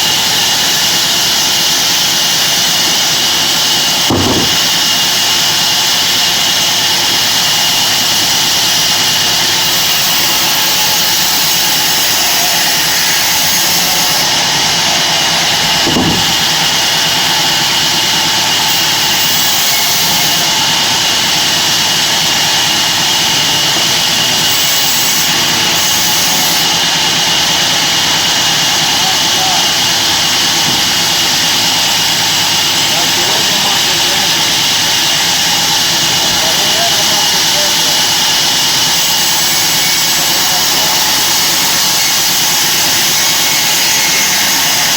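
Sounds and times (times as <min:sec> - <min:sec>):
band saw hissing: 0:00.0 - 0:44.9
low thump: 0:04.1 - 0:04.7, 0:15.9 - 0:16.3.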